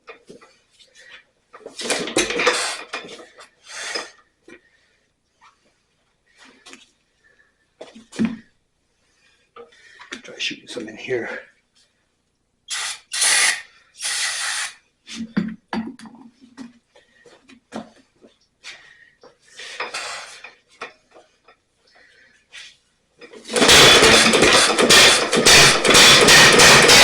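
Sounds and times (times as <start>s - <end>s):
stationary engine running: 23.5s - 27.0s.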